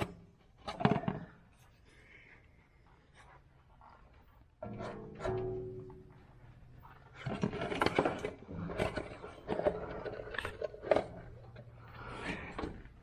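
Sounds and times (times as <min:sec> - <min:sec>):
clunks and scrapes of handling: 0:00.0 - 0:01.8, 0:04.5 - 0:13.0.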